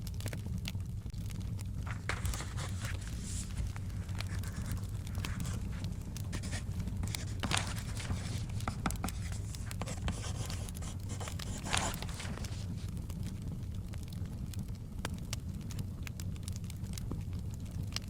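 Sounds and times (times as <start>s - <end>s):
wood fire crackling and popping: 0.0s - 18.0s
book pages turning: 1.8s - 13.0s.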